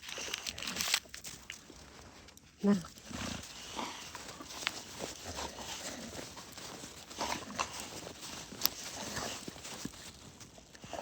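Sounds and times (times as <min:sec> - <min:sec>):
footsteps crunching in snow: 0:02.9 - 0:11.0.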